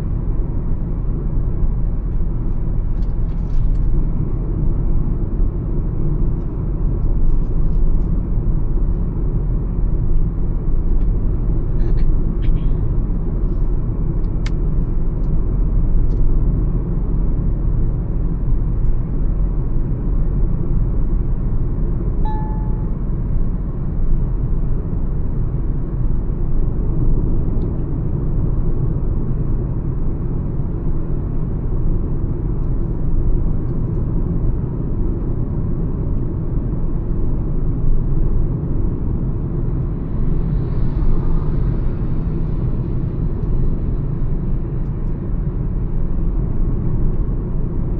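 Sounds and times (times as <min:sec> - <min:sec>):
car cruising on highway: 0:00.0 - 0:47.9
single electronic tone: 0:22.2 - 0:23.0.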